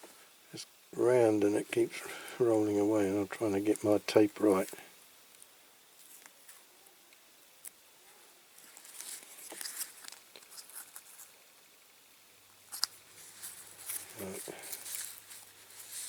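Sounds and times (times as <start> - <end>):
masking tape crackling: 0.5 - 7.9, 12.6 - 16.0.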